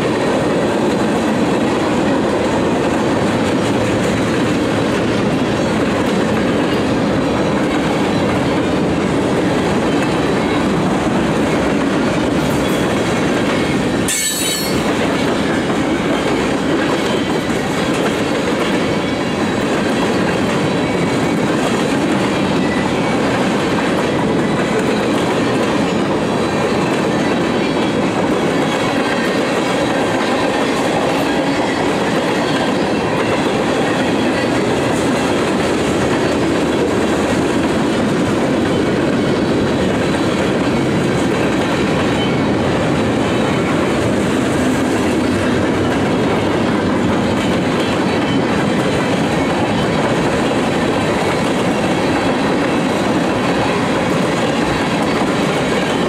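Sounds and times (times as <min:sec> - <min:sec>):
freight train rumbling: 0:00.0 - 0:56.0
high wheel squeal: 0:13.6 - 0:15.0.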